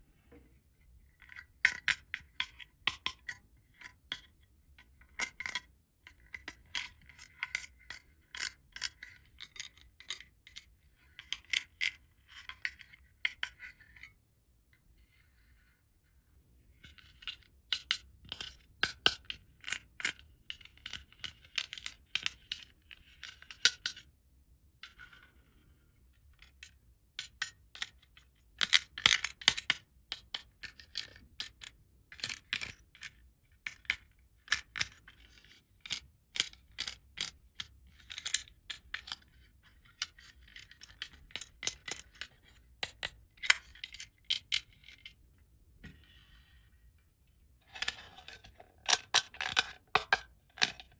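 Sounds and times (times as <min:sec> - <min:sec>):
plastic toy pieces clicking: 0:28.6 - 0:39.2, 0:47.8 - 0:50.9.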